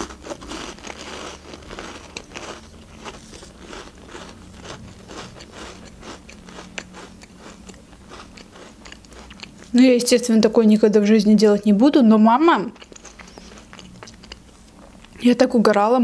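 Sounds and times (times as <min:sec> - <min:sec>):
person chewing crunchy cracker: 0:00.0 - 0:09.8, 0:12.6 - 0:15.2.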